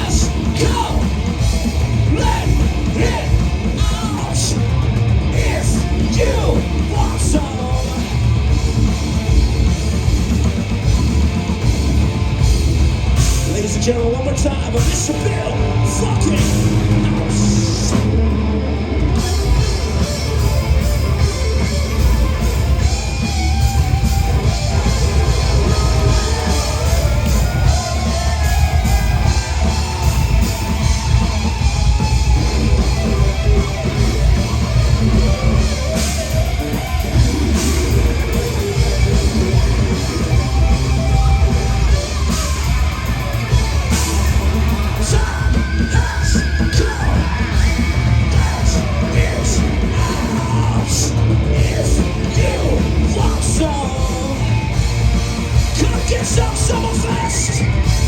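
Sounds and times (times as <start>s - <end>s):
person yelling vocals: 0.0s - 1.2s, 2.0s - 4.6s
distorted electric guitars: 0.0s - 58.0s
drums: 0.0s - 58.0s.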